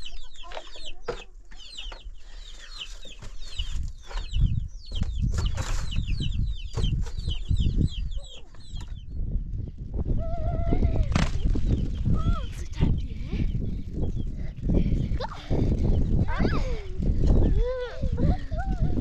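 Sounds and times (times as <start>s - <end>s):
poultry chirping: 0.0s - 14.6s.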